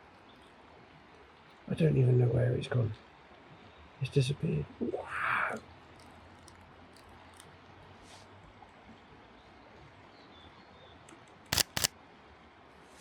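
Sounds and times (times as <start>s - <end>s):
camera shutter clicks: 11.5s - 11.9s.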